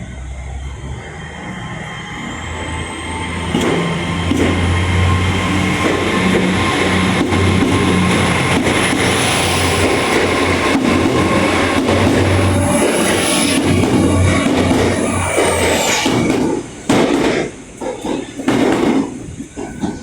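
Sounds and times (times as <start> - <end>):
high wheel squeal: 0.0 - 18.5
diesel train engine drone: 0.0 - 20.0
wheels clicking over rail joints: 3.5 - 15.0.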